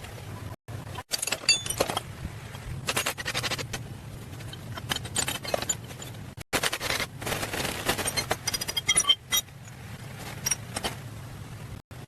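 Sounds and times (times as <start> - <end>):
scraping and light clinking: 2.8 - 7.1, 7.8 - 11.0.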